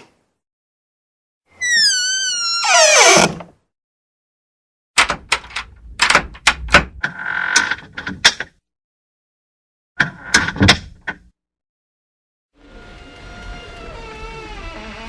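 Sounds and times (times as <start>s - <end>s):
door creaking: 1.6s - 3.5s, 12.8s - 15.0s
door hinge squealing: 1.6s - 3.5s, 13.3s - 15.0s.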